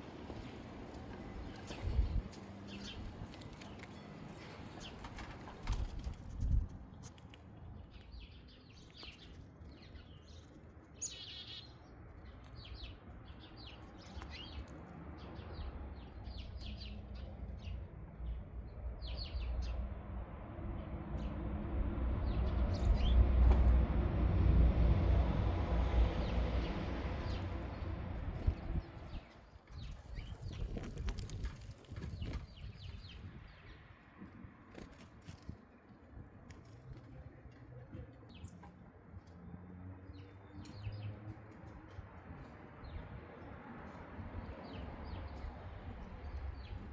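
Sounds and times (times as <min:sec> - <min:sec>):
small birds chirping: 0:00.2 - 0:19.8, 0:27.2 - 0:33.9, 0:35.2 - 0:46.9
low rumble: 0:18.2 - 0:29.2.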